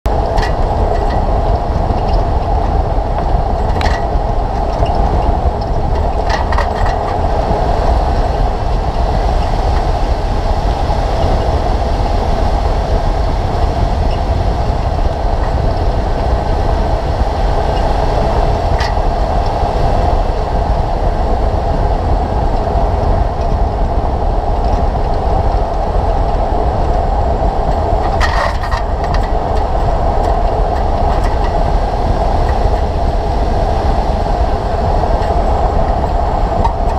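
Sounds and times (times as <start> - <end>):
low road rumble: 0.0 - 36.9
brake noise: 0.1 - 36.9
vehicle rolling noise: 0.1 - 36.9.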